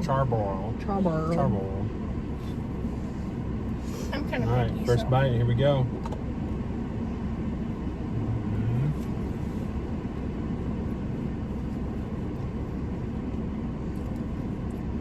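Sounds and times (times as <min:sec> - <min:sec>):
car engine rumble: 0:00.0 - 0:15.0
low hum rising in pitch: 0:07.9 - 0:09.1.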